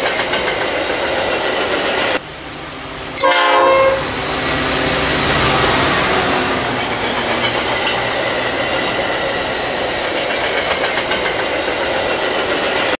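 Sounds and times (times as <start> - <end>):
passenger train rushing by: 0.0 - 13.0
wheels clicking over rail joints: 6.4 - 13.0.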